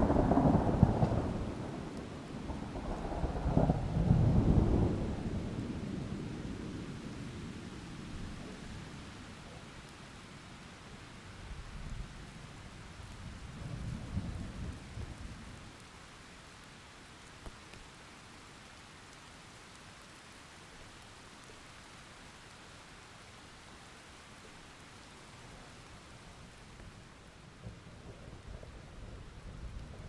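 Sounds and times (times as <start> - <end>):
thunder rolling: 0.0 - 5.8, 27.6 - 30.0
steady rainfall: 0.0 - 30.0.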